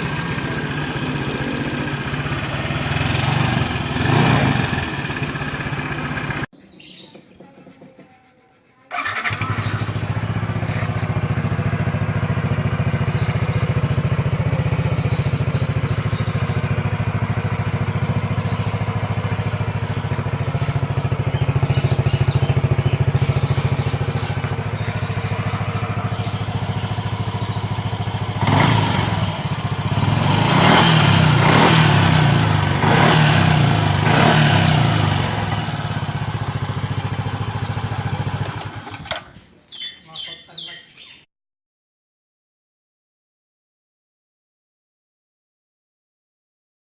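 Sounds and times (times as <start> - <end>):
scooter engine idling and revving: 0.0 - 6.5, 8.9 - 39.3.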